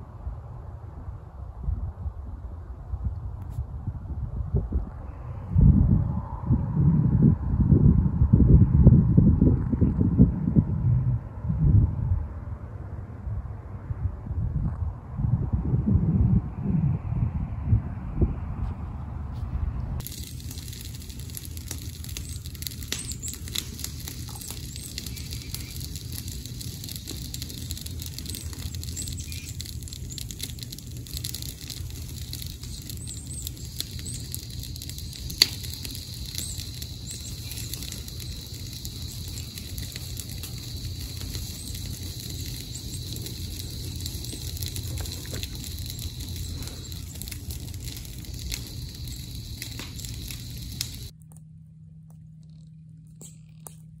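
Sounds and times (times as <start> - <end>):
low rumble on microphone: 0.0 - 54.0
dry leaves crackling: 20.0 - 51.1.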